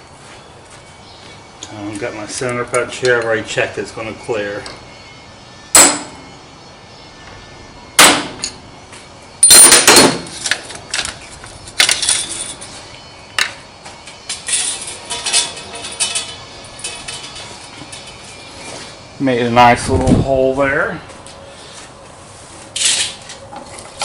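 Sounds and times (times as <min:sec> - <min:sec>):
hammer striking metal punch: 0:05.7 - 0:06.2, 0:08.0 - 0:08.6, 0:09.4 - 0:10.3.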